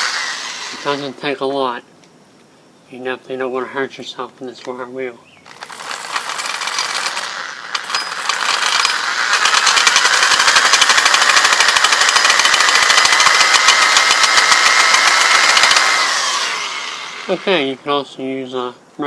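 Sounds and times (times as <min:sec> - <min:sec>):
drill motor whine: 0:00.0 - 0:01.2, 0:05.5 - 0:17.8
wire wheel scratching metal: 0:05.5 - 0:11.2.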